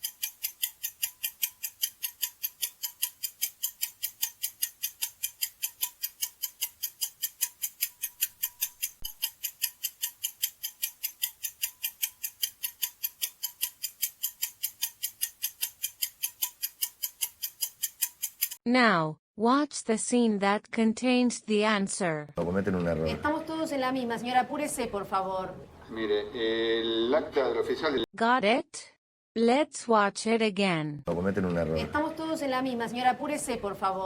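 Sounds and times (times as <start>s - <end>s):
clock ticking: 0.0s - 18.6s, 31.1s - 34.0s.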